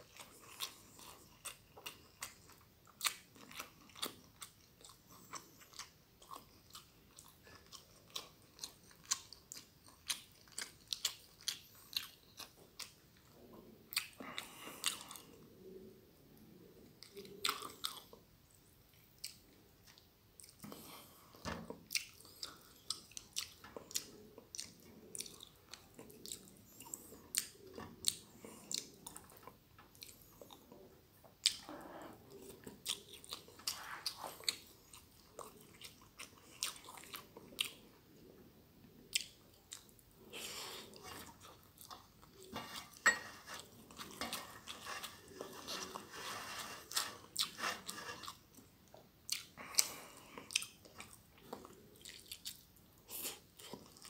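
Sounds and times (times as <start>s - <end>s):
chewing with wet mouth clicks: 0.0s - 13.3s, 17.0s - 18.2s, 18.9s - 20.9s, 21.9s - 30.8s, 31.4s - 38.3s, 39.0s - 40.0s, 48.2s - 54.0s.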